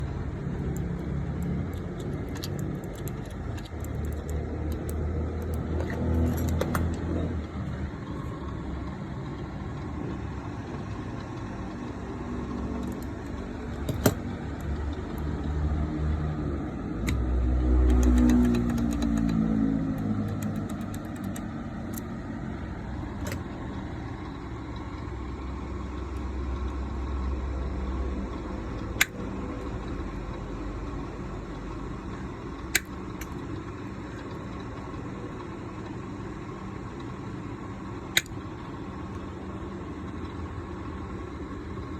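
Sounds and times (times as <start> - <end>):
engine low rumble: 0.0 - 41.9
sharp clicks: 17.0 - 22.1, 28.8 - 29.2, 32.7 - 33.4.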